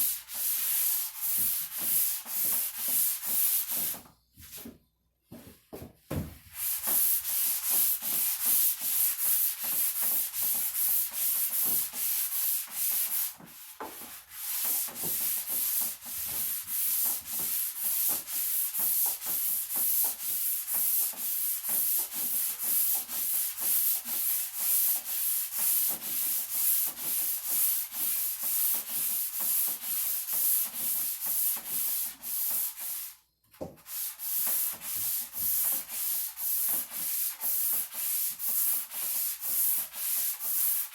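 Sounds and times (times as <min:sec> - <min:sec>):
sandpaper scratching on wood: 0:06.6 - 0:33.2, 0:33.9 - 0:40.9.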